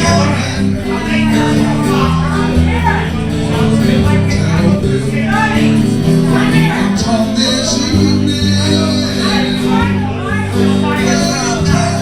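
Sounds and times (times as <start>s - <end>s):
acoustic guitar chords: 0.0s - 12.0s
person singing: 3.6s - 12.0s.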